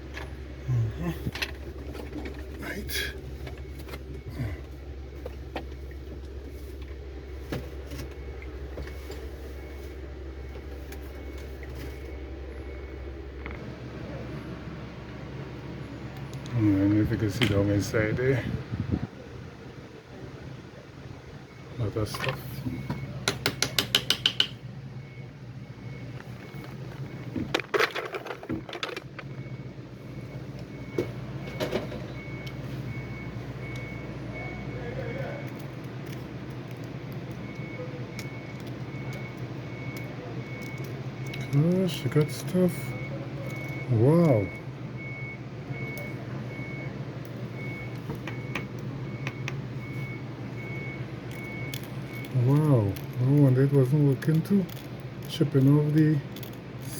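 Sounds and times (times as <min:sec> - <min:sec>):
reversing alarm beeping: 0:00.0 - 0:13.6, 0:21.4 - 0:24.0, 0:24.6 - 0:56.9
steady low hum: 0:00.0 - 0:56.9
tools and parts knocking: 0:23.2 - 0:24.6, 0:27.4 - 0:29.3.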